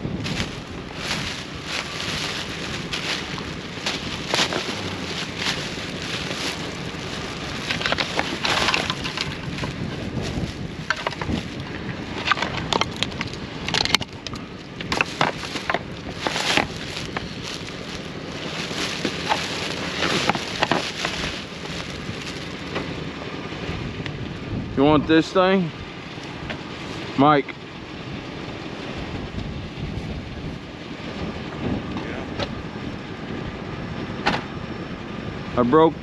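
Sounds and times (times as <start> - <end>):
rummaging through trash: 0.0 - 14.2, 14.8 - 22.9
steady noisy background: 0.0 - 36.0.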